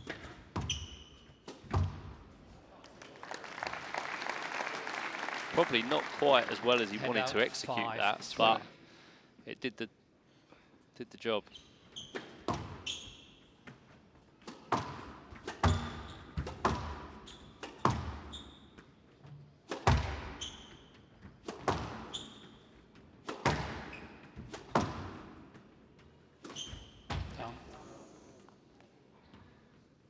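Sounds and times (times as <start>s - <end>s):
shoes squeaking on court floor: 0.0s - 2.4s, 11.4s - 27.8s
squash ball cracking off walls: 14.5s - 18.3s, 19.7s - 20.4s, 21.4s - 22.1s, 23.3s - 25.3s.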